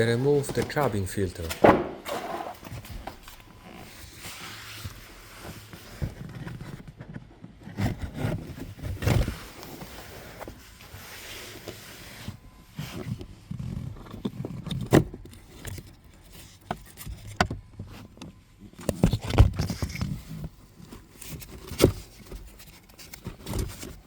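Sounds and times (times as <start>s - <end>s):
plastic scraping and clicking: 13.1s - 24.0s.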